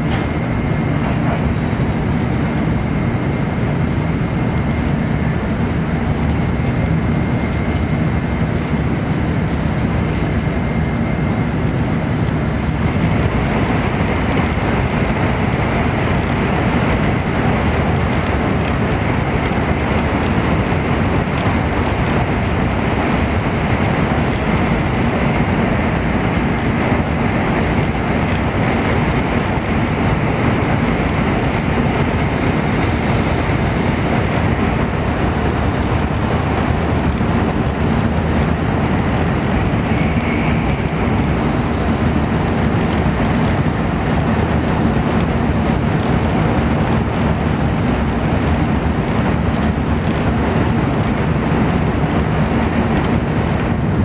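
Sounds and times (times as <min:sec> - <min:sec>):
train rumble from inside cabin: 0:00.0 - 0:54.0
faint high whine: 0:39.7 - 0:41.4.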